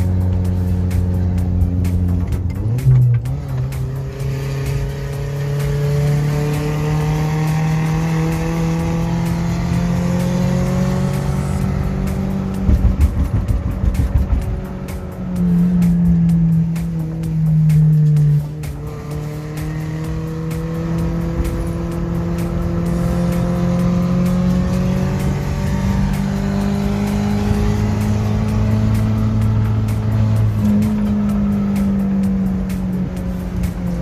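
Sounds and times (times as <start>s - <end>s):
van engine running: 8.3s - 34.0s.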